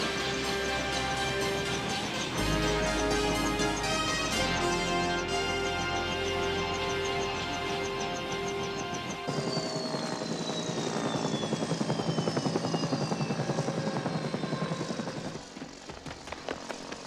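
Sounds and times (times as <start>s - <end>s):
helicopter rotor chopping: 0.0s - 17.0s
turbine whine falling in pitch: 6.7s - 17.0s.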